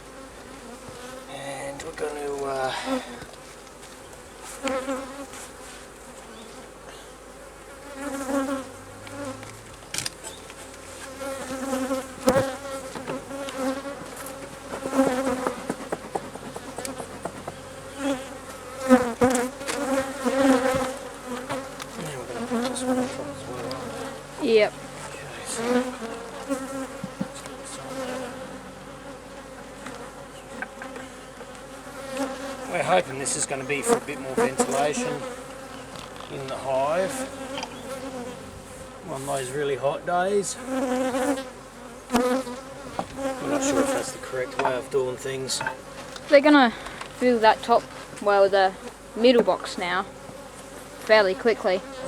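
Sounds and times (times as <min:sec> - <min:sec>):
honey bees buzzing: 0:00.0 - 0:52.0
knocks of hive parts: 0:12.2 - 0:13.8, 0:14.4 - 0:17.6, 0:42.1 - 0:43.9.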